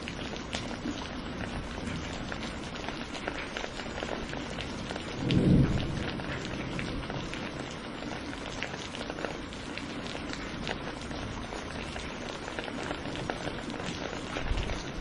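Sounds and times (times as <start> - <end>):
low rumble of thunder: 0.0 - 9.6
steady rain falling: 0.0 - 15.0.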